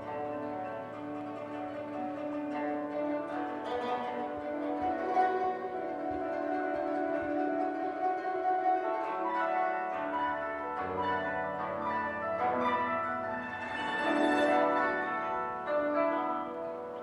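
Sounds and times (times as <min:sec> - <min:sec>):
deeper koto notes: 0:00.0 - 0:17.0
plucked koto strings: 0:00.0 - 0:17.0.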